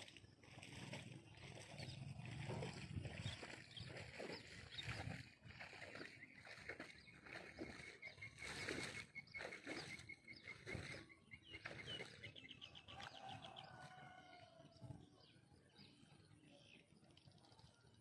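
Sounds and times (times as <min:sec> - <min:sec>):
bird calls: 0:01.4 - 0:14.6.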